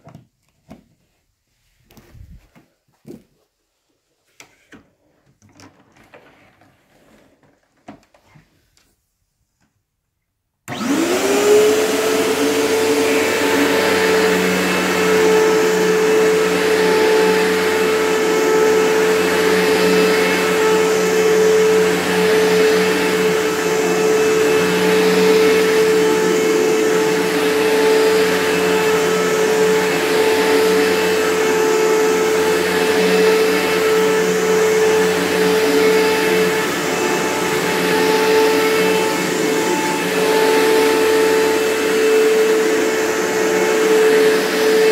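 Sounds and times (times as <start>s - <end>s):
vacuum cleaner motor whining: 10.6s - 44.9s.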